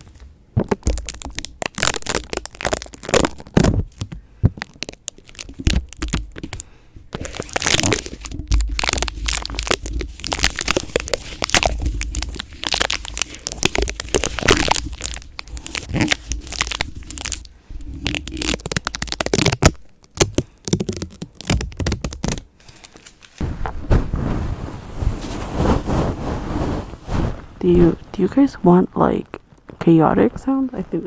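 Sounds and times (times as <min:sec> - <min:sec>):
crackling and tearing: 0:00.0 - 0:28.2
low handling thumps: 0:23.4 - 0:28.5.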